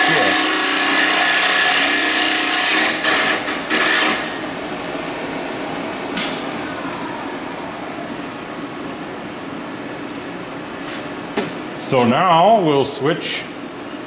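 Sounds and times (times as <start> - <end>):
lathe tool scraping wood: 0.0 - 4.3
lathe running: 0.0 - 8.8.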